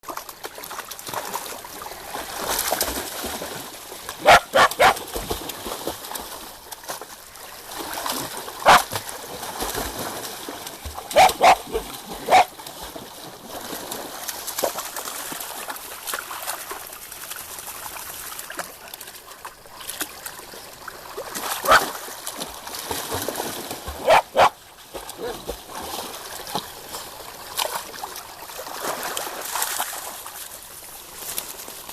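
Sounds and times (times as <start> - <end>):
water splashing and lapping: 0.0 - 31.9
dog barking: 4.2 - 5.0, 8.6 - 8.9, 11.1 - 12.5, 24.0 - 24.6.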